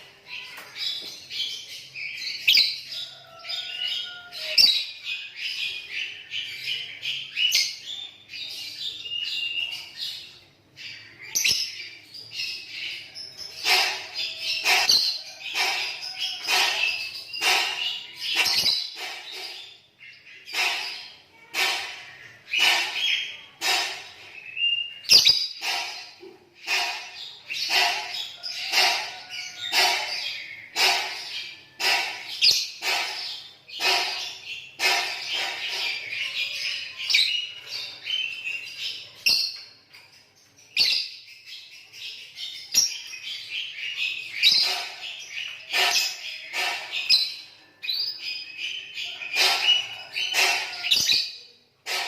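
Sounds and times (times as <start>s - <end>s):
lovebirds chattering: 0.0s - 39.8s, 41.8s - 52.0s.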